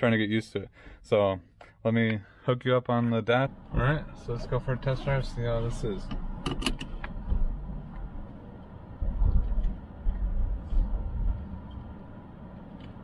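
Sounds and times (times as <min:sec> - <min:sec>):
car exhaust rumble from inside: 0:03.5 - 0:13.0.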